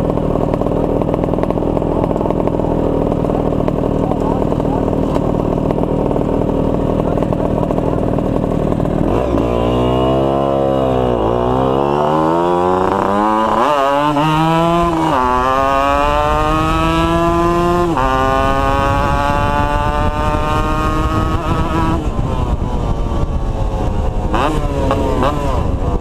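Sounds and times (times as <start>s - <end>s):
two-stroke motorcycle engine accelerating: 0.0s - 26.0s
wind rushing: 11.7s - 26.0s.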